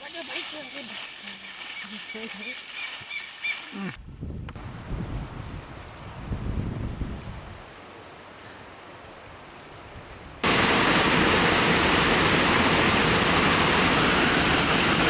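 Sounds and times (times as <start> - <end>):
rushing river water: 10.4 - 15.0.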